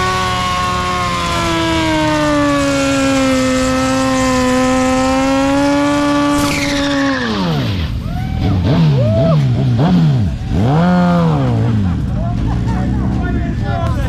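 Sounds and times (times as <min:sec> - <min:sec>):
motorcycle engine revving high: 0:00.0 - 0:14.0.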